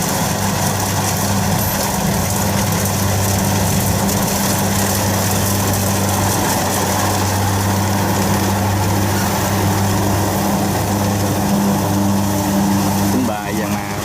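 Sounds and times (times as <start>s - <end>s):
constant machine noise: 0.0s - 14.0s
diesel engine hum: 0.0s - 14.0s.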